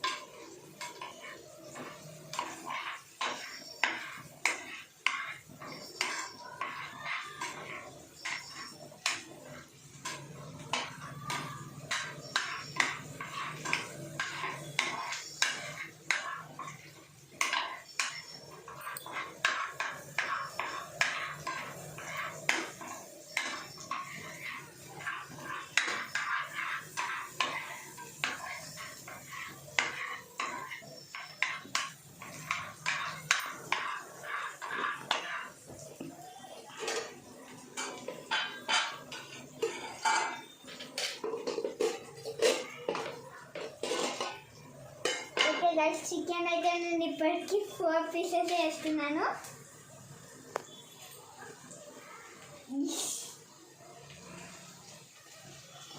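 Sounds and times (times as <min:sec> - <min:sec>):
metal spoon scraping a pot: 0:00.0 - 0:45.7.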